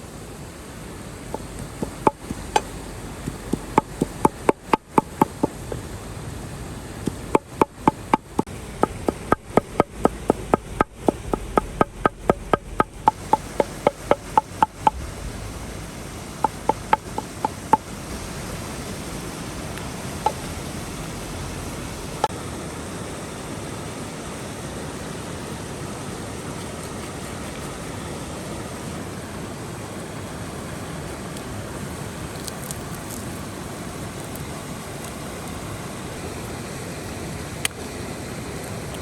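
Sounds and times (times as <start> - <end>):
knife chopping on wooden board: 3.3 - 5.6, 7.1 - 15.0.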